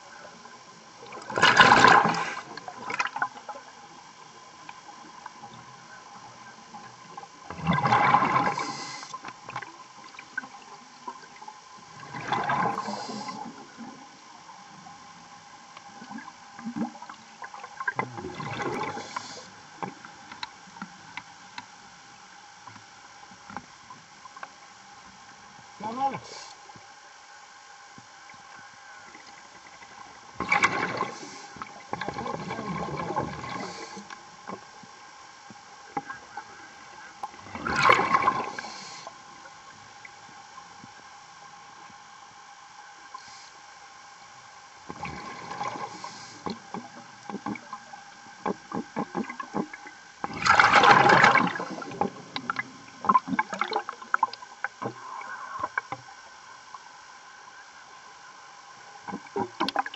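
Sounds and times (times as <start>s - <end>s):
underwater bubbles rushing: 0.0s - 21.7s, 29.1s - 41.1s, 44.7s - 56.8s, 59.0s - 59.9s
underwater crackling: 0.0s - 26.8s, 28.3s - 41.0s, 44.7s - 56.9s, 59.0s - 59.9s
faint steady hum: 0.0s - 59.9s.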